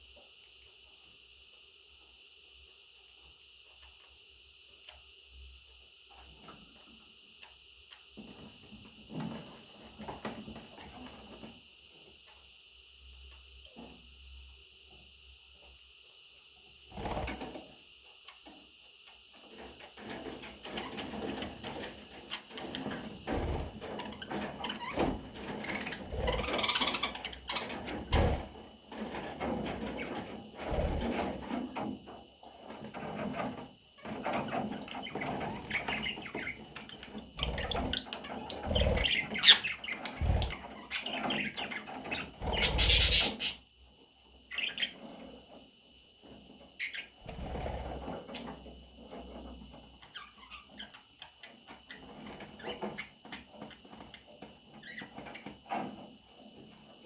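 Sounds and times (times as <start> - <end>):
budgerigar chicks chirping: 42.5 - 43.6.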